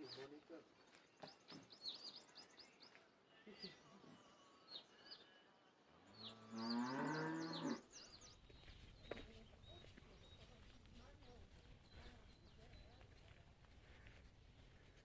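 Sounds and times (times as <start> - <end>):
small birds chirping: 0.0 - 15.0
cow mooing: 6.4 - 7.8.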